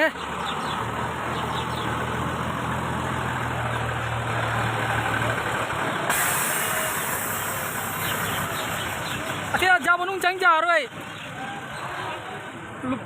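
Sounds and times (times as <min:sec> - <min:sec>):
vehicle engine idling: 0:00.0 - 0:12.9
outdoor noise hiss: 0:06.0 - 0:09.6.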